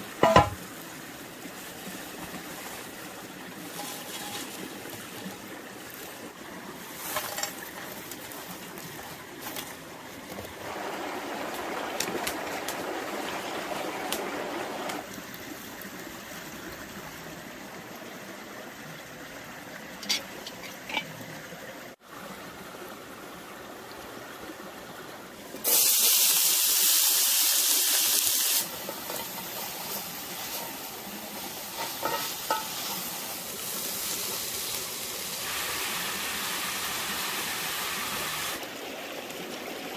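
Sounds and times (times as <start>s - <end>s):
food sizzling in a pan: 0.0s - 6.3s, 6.9s - 8.8s, 25.6s - 38.6s
loud hiss: 25.6s - 38.6s.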